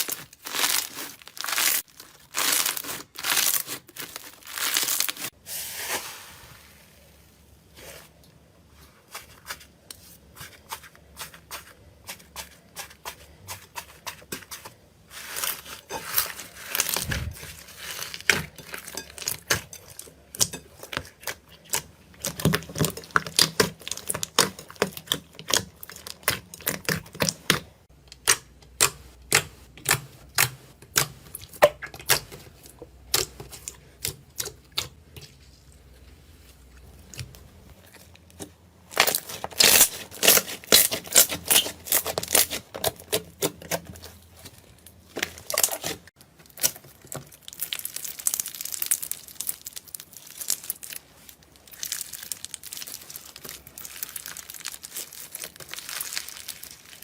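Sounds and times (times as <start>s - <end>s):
crunchy material crackling: 0.0s - 6.9s, 47.4s - 57.0s.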